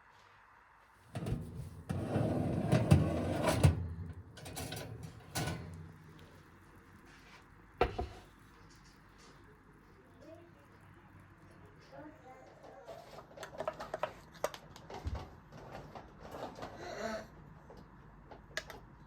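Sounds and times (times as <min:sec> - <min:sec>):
scraping rustle: 0:01.2 - 0:06.1.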